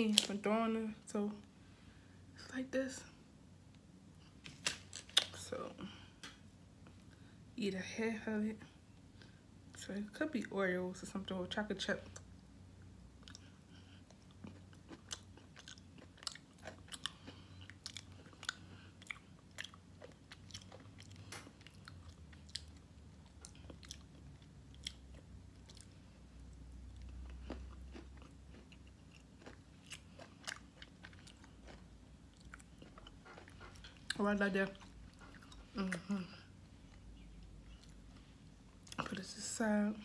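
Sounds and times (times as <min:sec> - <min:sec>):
person chewing crunchy snack: 0:13.2 - 0:26.0, 0:26.9 - 0:35.8.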